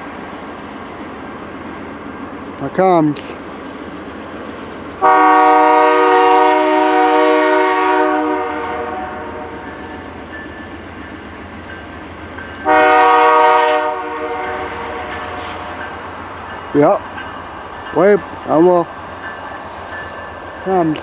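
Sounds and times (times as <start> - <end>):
locomotive air horn blasts: 5.0 - 9.6, 12.6 - 15.8.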